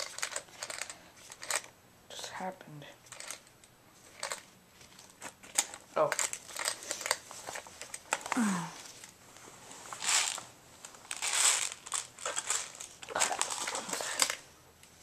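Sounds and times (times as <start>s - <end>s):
rustling and crinkling of gear: 3.1s - 14.5s.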